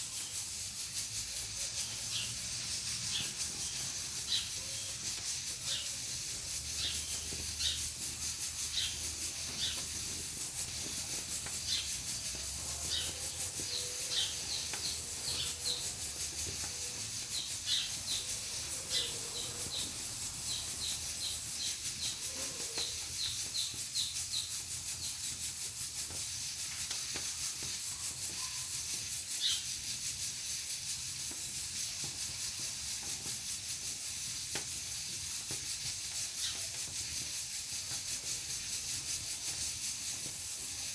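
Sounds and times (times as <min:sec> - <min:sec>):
pressure cooker hissing: 0:00.0 - 0:40.9.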